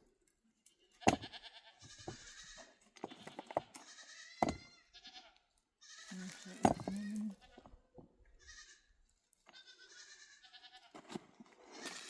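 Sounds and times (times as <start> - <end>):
livestock bleating: 1.0 - 7.8, 8.4 - 8.9, 9.5 - 11.0
sharp knocks: 1.1 - 1.3.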